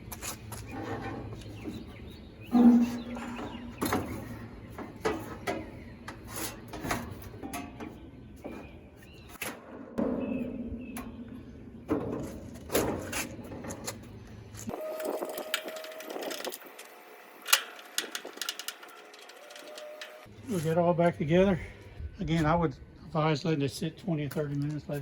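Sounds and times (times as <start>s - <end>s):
metallic knocks and clatter: 2.5s - 8.7s, 17.5s - 20.3s.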